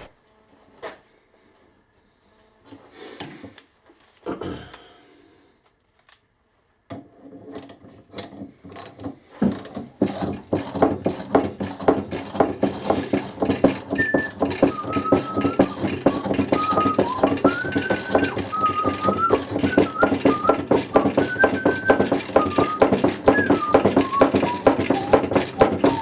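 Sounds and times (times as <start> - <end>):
sharp ratchet-like clicks: 9.5 - 26.0
short high squeaks: 13.8 - 26.0.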